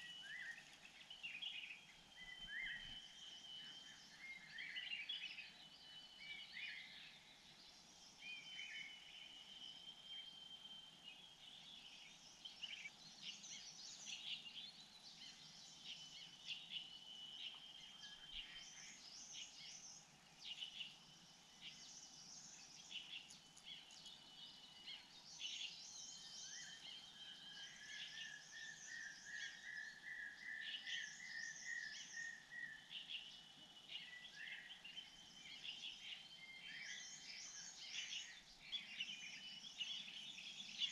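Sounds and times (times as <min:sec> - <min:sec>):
bird chirps: 0:00.0 - 0:40.9
thin whistled bird notes: 0:00.0 - 0:40.9.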